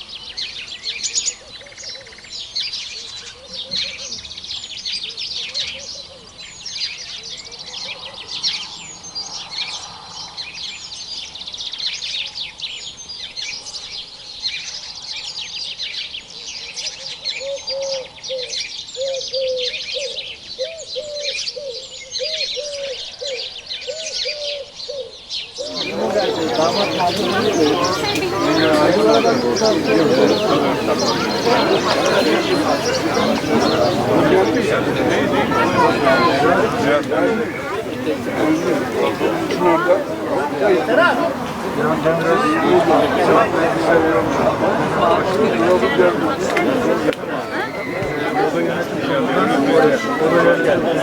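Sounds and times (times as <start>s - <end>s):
small birds chirping: 25.6s - 41.7s.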